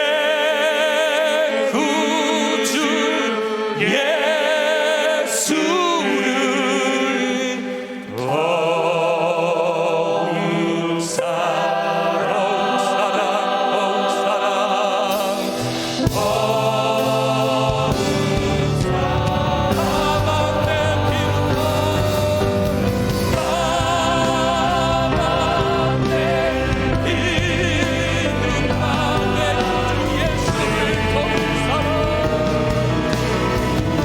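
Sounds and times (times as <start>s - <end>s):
keyboards: 0.0s - 34.0s
voices singing with vibrato: 0.0s - 34.0s
bass and drums: 16.0s - 34.0s.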